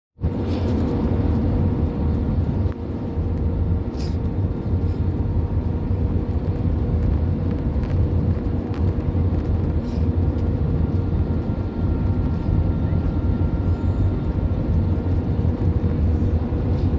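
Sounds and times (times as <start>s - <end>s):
engine and airflow rumble: 0.2s - 16.9s.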